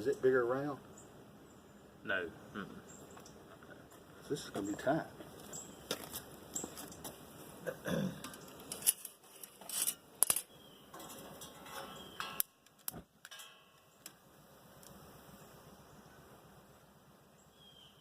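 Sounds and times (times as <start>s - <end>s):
metal clinks and knocks: 8.2s - 14.0s.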